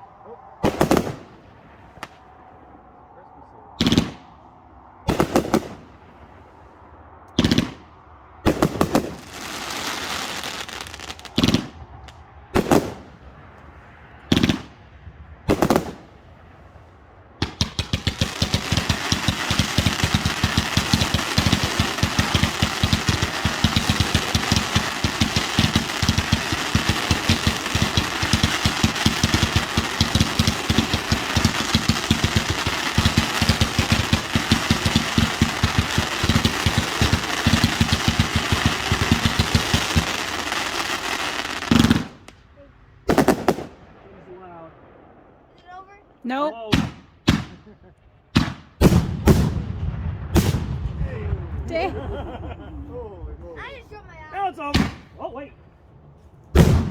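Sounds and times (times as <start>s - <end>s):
firework bangs: 0.6s - 2.4s, 3.8s - 6.6s, 7.4s - 13.5s, 14.2s - 42.5s, 43.1s - 45.4s, 46.7s - 52.4s, 54.6s - 55.2s, 56.5s - 56.9s
rapid crackling pops: 7.3s - 13.1s, 17.4s - 42.5s
hissing crackle: 16.6s - 42.5s.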